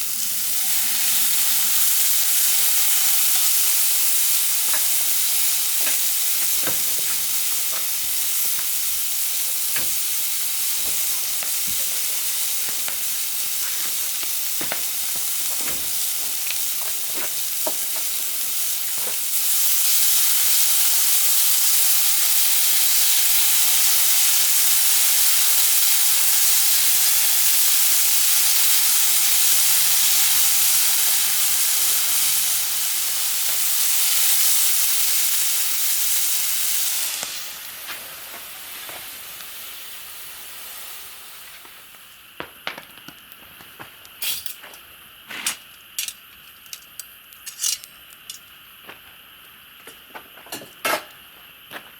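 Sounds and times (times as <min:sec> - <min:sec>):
food sizzling in a pan: 0:00.0 - 0:51.9
sharp pops and crackles: 0:02.3 - 0:19.7, 0:41.4 - 0:44.8.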